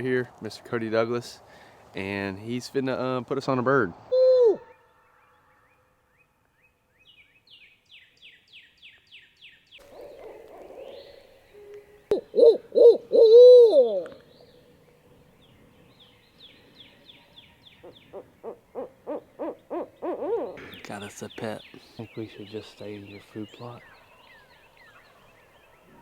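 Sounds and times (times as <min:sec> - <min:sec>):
owl hooting: 0:04.1 - 0:04.9, 0:09.8 - 0:14.2, 0:17.8 - 0:20.6.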